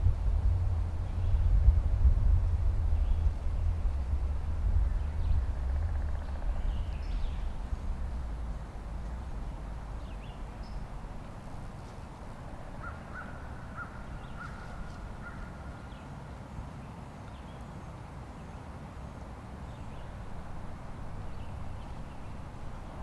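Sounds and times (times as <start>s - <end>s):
low steady rumble: 0.0s - 15.9s, 19.3s - 23.0s
distant birds calling: 5.0s - 16.1s, 19.6s - 23.0s.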